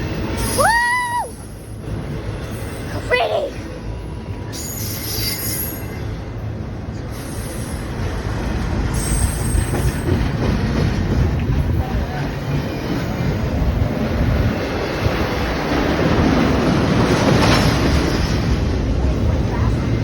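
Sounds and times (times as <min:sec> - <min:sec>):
train wheels rumbling on rails: 0:00.0 - 0:20.0
high-pitched wheel squeal: 0:04.6 - 0:06.1.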